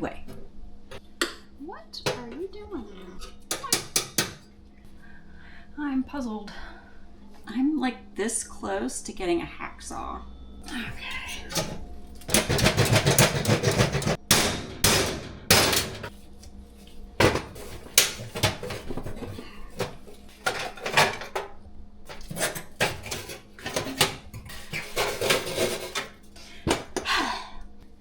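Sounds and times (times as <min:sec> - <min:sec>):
metal tools scraping and clinking: 0:11.1 - 0:14.2, 0:15.1 - 0:16.2, 0:17.6 - 0:21.5, 0:22.1 - 0:26.4.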